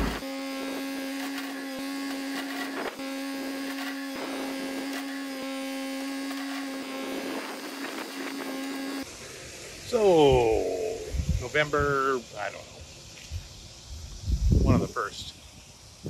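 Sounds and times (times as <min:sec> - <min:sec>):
tractor engine whining: 0:00.0 - 0:09.1.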